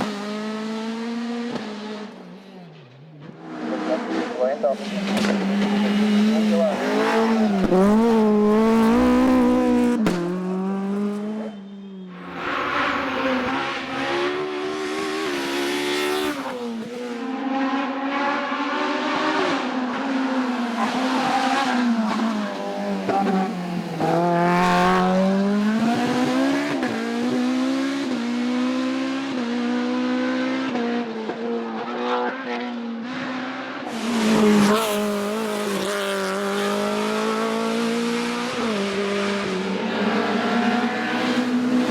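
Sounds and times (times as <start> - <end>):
racing car engines revving: 0.0 - 41.9
tyre squeal: 11.5 - 13.7.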